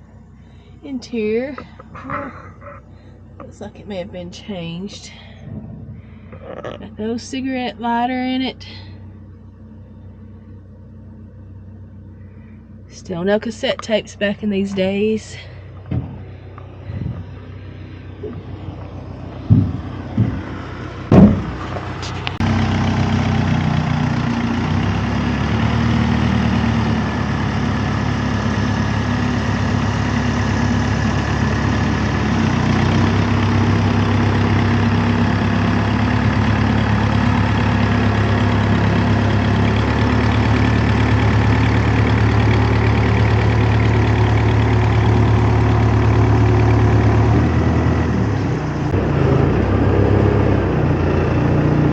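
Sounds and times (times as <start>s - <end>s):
vehicle engine idling: 0.0s - 51.9s
sharp thumps: 15.8s - 16.3s, 18.2s - 22.2s.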